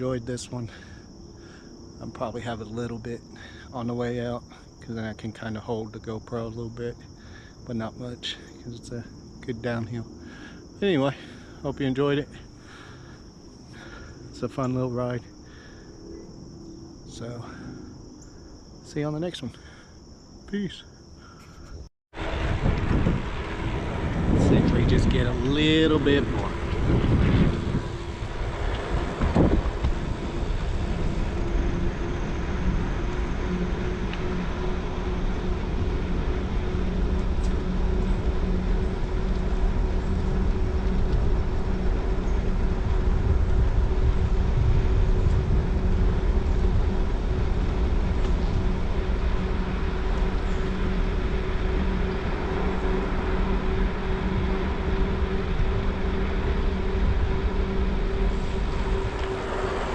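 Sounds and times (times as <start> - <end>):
faint steady hum: 0.0 - 59.9
bicycle tyres on wet pavement: 22.2 - 59.9
wind on microphone: 22.2 - 59.9.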